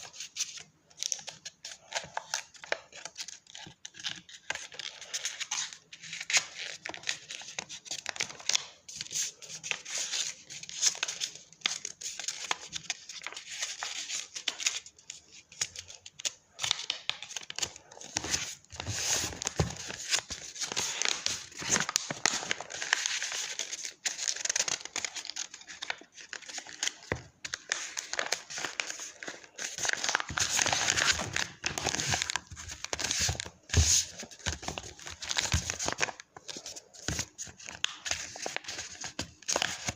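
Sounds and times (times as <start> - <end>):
paper rustling and crinkling: 0.0 - 39.9.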